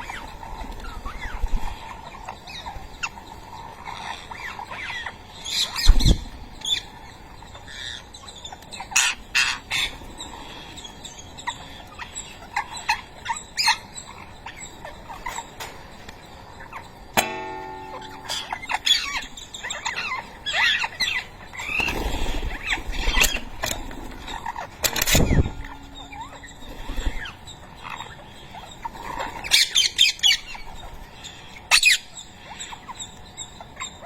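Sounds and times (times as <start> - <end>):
parakeets chirping and squawking: 0.0 - 34.0.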